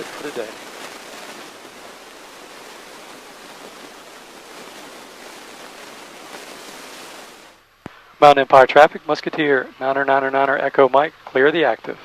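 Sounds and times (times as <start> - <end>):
airplane cabin rushing hiss: 0.0 - 7.6.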